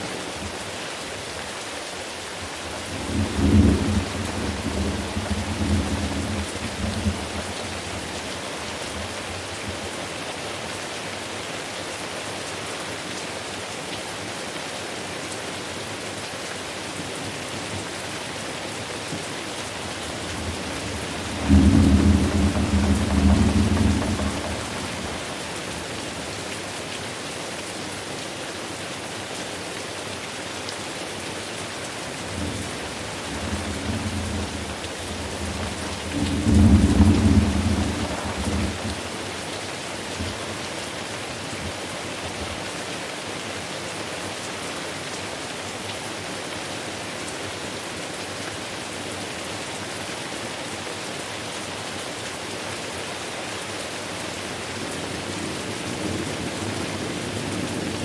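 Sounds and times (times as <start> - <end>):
steady rain hissing: 0.0 - 58.0
rolling thunder: 2.8 - 8.4, 19.9 - 26.4, 32.2 - 39.3.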